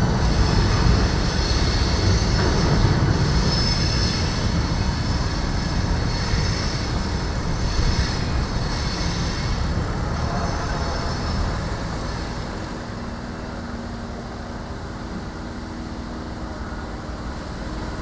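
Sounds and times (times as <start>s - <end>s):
train wheels squealing: 0.0s - 12.9s
train cars rumbling: 0.0s - 18.0s.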